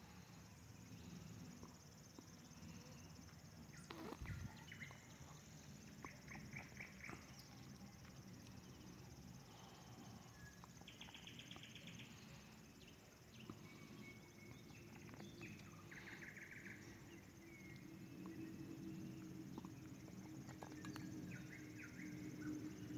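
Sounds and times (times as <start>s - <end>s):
low steady hum: 0.0s - 22.9s
nightingale singing: 10.3s - 22.9s.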